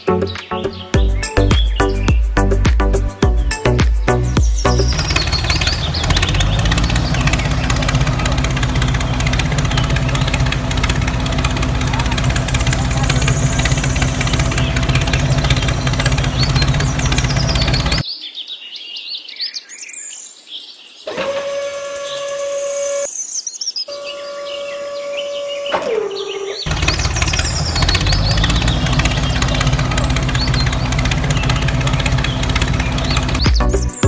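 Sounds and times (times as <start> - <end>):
birds chirping: 0.0 - 34.0
engine running: 1.0 - 18.0, 26.6 - 34.0.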